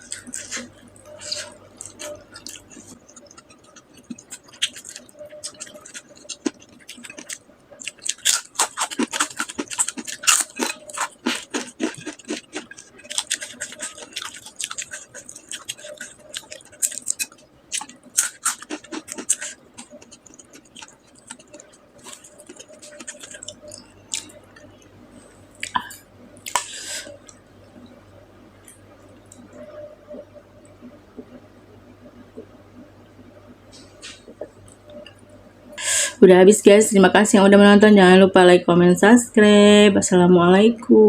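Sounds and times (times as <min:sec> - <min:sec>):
chewing and mouth smacking: 0:00.0 - 0:24.7.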